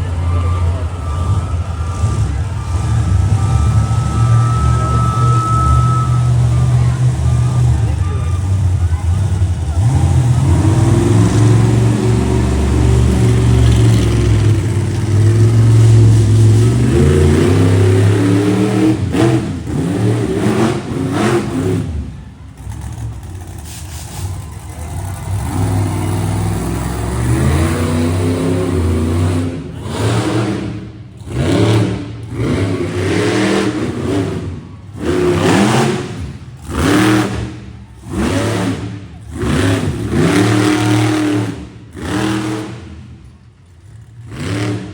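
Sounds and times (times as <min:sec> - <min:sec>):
monster truck engine revving: 0:00.0 - 0:44.9.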